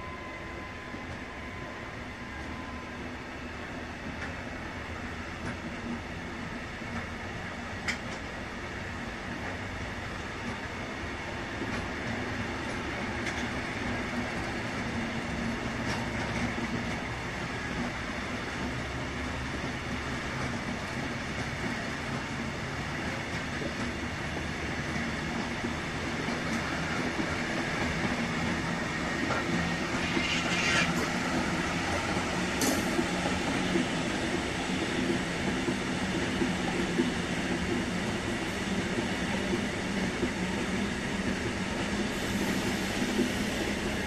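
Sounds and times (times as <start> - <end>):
freight train wheels on rails: 0.0 - 44.0
high wheel screech: 29.9 - 31.2.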